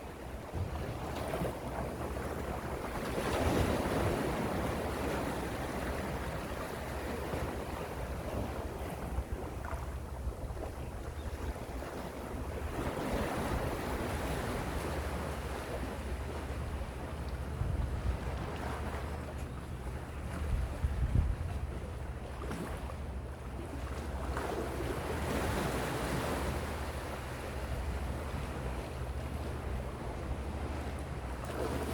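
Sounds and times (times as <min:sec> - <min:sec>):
wind rumble on microphone: 0:00.0 - 0:31.9
sea waves washing in: 0:22.4 - 0:31.9.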